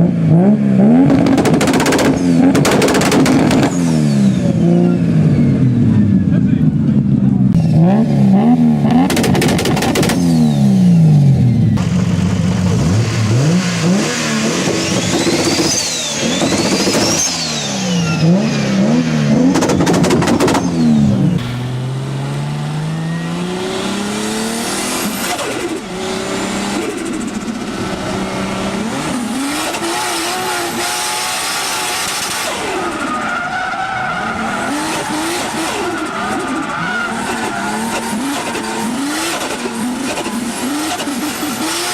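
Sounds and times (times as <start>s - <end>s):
car engines revving: 0.0s - 41.9s
sharp exhaust bangs: 1.0s - 4.6s, 11.7s - 27.8s.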